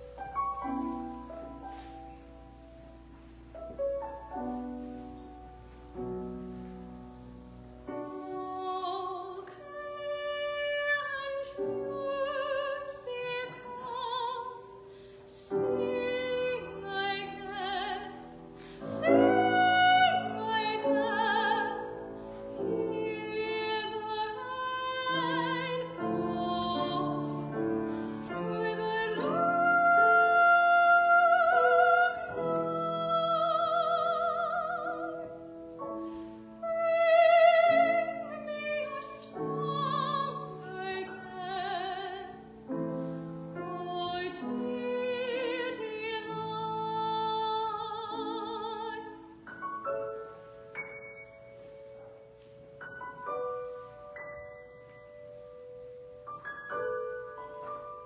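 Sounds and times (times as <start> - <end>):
piano accompaniment: 0.0 - 58.0
trained singer with vibrato: 15.3 - 35.4.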